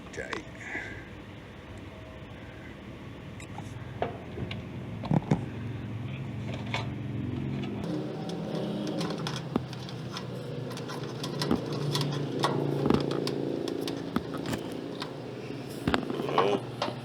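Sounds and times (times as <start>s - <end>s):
low mechanical hum: 0.4s - 17.0s
tools and metal parts tapping: 7.8s - 17.0s.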